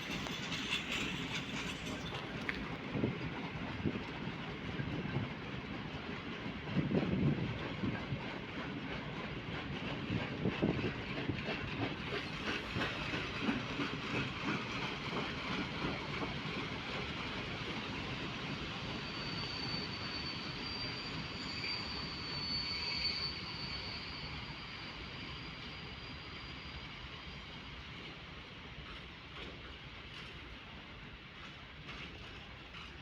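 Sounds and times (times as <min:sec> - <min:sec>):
wheels squealing on rail: 0:00.0 - 0:02.8, 0:06.7 - 0:29.0
train wheels clattering over rail joints: 0:00.0 - 0:18.2.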